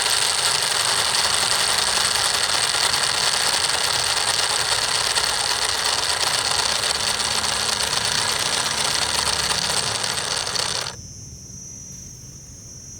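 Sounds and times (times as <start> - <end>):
model engine rattling: 0.0 - 11.0.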